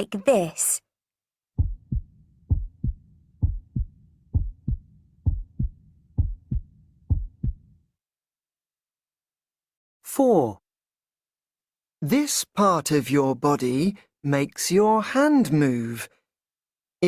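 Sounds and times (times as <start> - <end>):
heartbeat thumps: 1.6 - 7.8.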